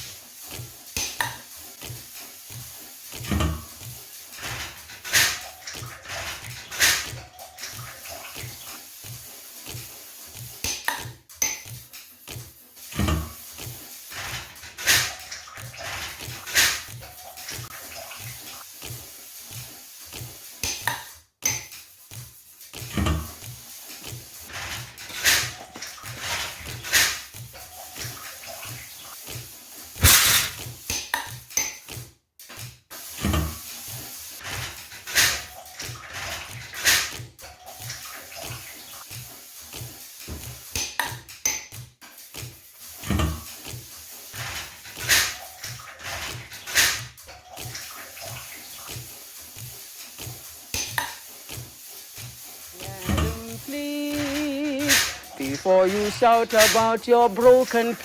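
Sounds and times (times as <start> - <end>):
water splashing in a tub: 0.0 - 11.1, 11.7 - 21.1, 21.9 - 30.8, 32.9 - 58.0
dishes and cutlery clattering: 30.0 - 31.9.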